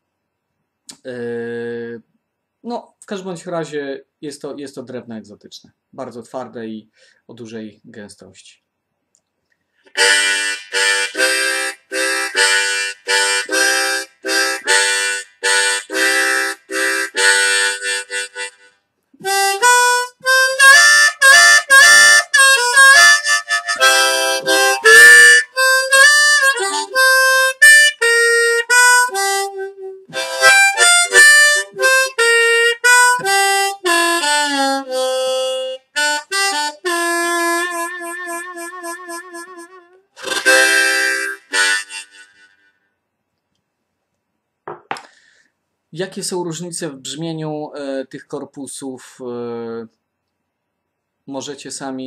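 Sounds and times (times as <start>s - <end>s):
harmonica blues melody: 9.9s - 42.9s
harmonica chugging chords: 9.9s - 42.9s.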